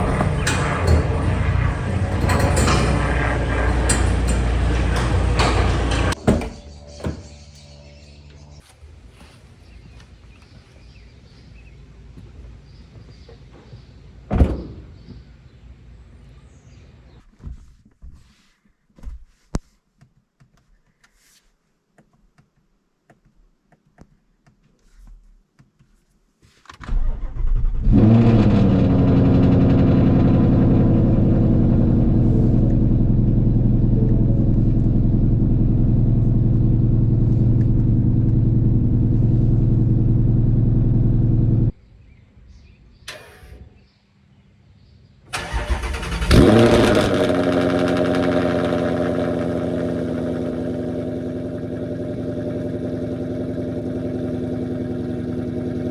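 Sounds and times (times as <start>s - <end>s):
car engine starting and idling: 0.0s - 8.5s, 26.9s - 41.8s, 45.3s - 55.9s
thump: 14.3s - 15.2s.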